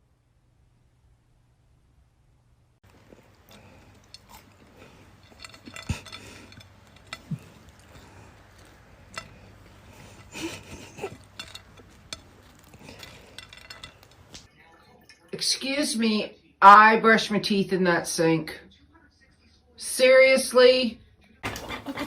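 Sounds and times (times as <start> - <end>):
small hard objects clinking: 2.8 - 14.5.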